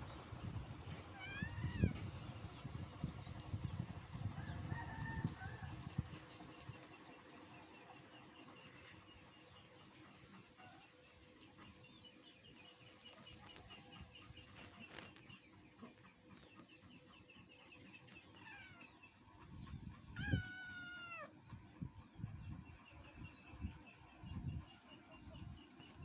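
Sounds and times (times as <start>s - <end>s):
kitten meowing: 1.1s - 1.9s, 20.2s - 21.3s
small birds chirping: 5.9s - 26.0s.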